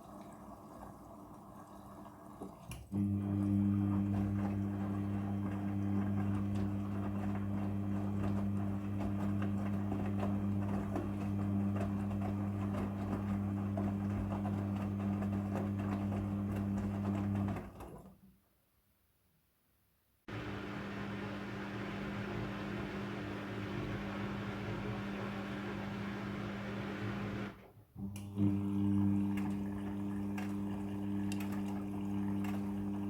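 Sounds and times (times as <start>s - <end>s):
water flowing: 0.0s - 6.5s
washing machine electric hum: 0.0s - 18.2s, 20.3s - 33.0s.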